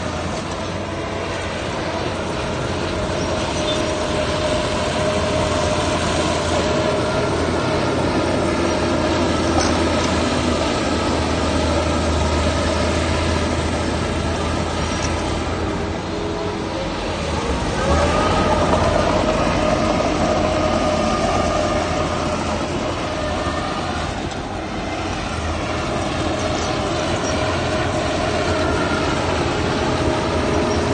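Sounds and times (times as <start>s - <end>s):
diesel machinery running: 0.0s - 30.9s
whining tone: 0.0s - 30.9s.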